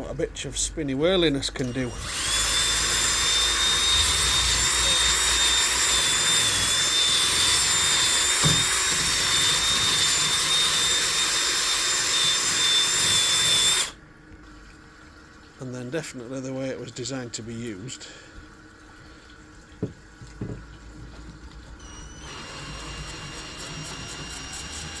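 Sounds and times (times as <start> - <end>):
power tool motor whine: 1.6 - 14.0, 21.8 - 25.0.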